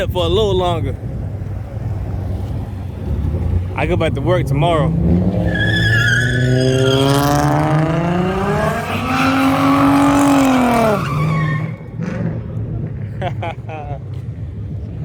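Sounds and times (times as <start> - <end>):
car engine revving hard: 3.1 - 13.1
tyres squealing: 5.4 - 7.5, 8.6 - 12.0.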